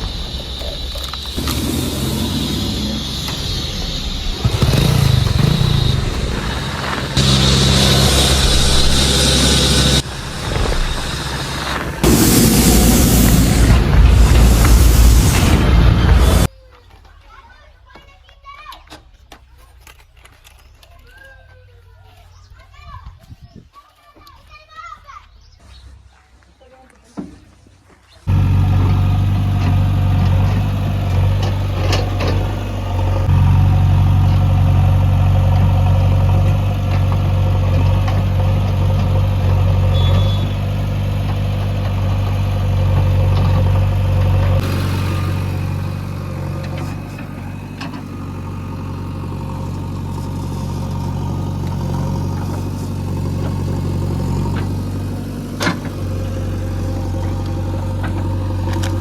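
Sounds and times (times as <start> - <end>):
diesel engine running: 0.0 - 16.5, 28.3 - 59.0
clanks: 28.3 - 59.0.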